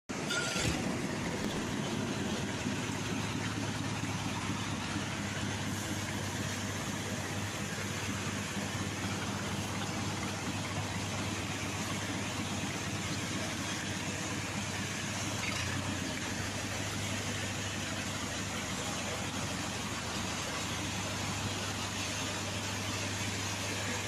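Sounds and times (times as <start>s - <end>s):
constant low hum: 0.2s - 24.0s.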